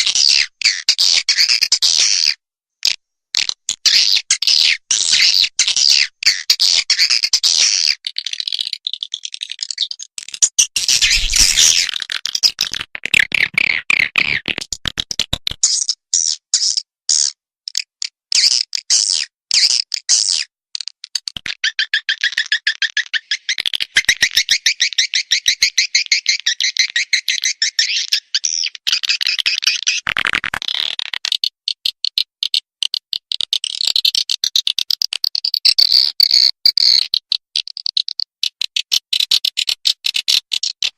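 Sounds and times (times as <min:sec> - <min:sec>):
swiftlet chirping: 0:10.8 - 0:11.9.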